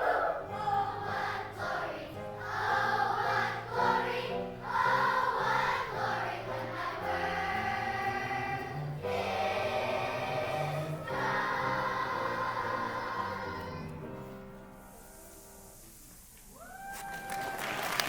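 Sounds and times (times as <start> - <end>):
choir singing in parts: 0.0 - 14.2.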